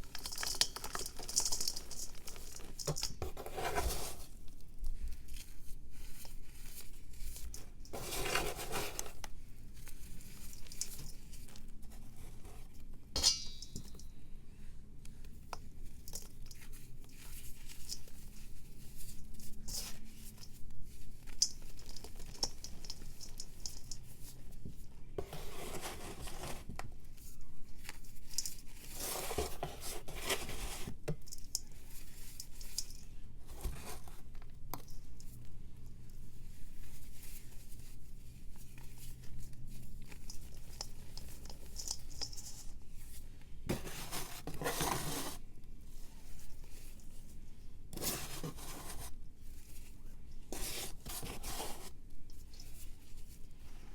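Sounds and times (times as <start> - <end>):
pressed powder crumbling and scraping: 0.0 - 14.7, 15.4 - 34.9, 36.3 - 47.1, 47.9 - 53.9.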